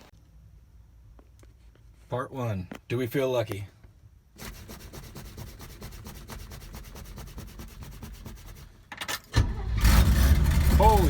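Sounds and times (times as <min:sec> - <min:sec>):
engine starter cranking: 0:09.1 - 0:11.0
engine running loudly: 0:09.9 - 0:11.0.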